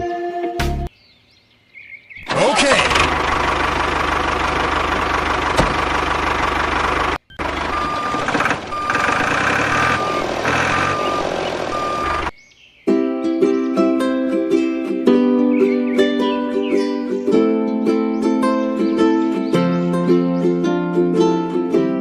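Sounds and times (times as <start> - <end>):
construction vehicle engine running: 2.3 - 12.4
reversing alarm beeping: 7.3 - 12.4.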